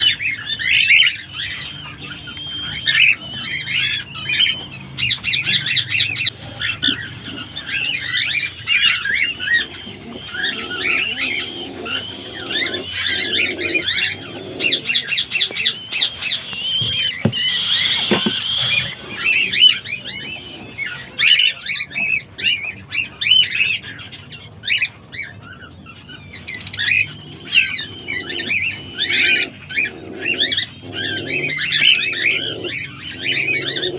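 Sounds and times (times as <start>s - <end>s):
bird chicks chirping and squawking: 0.0s - 33.9s.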